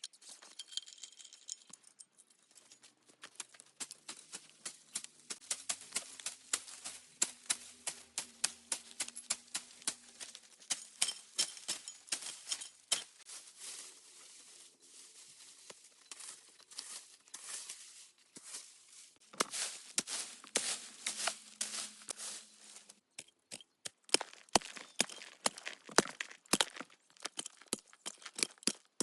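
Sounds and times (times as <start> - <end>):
rustling scraping: 17.4 - 23.0.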